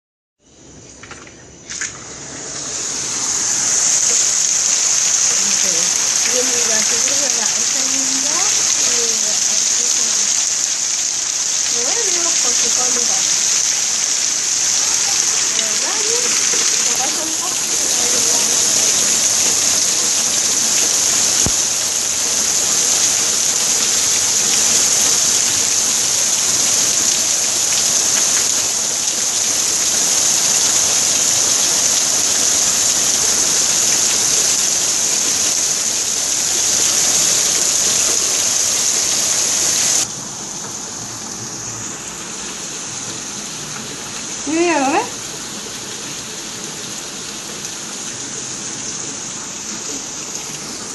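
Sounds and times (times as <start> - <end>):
rain falling: 0.7 - 50.9.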